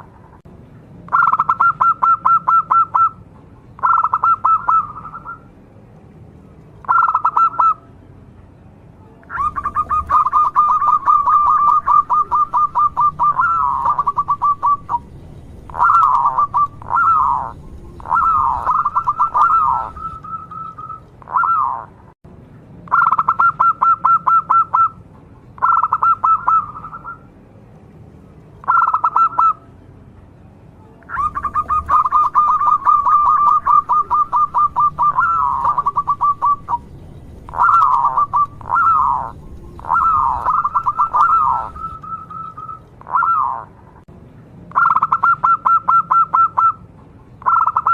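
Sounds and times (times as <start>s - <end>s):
dove cooing: 1.1s - 3.2s, 3.8s - 5.4s, 6.8s - 7.8s, 9.3s - 15.1s, 15.7s - 21.9s, 25.6s - 27.2s, 28.6s - 29.6s, 31.1s - 43.8s.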